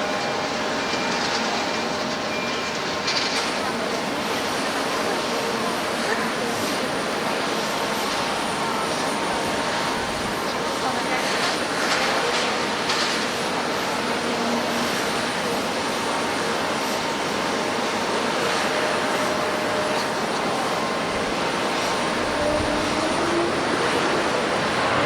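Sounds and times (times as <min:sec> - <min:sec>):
jet airliner engines: 0:00.0 - 0:25.0.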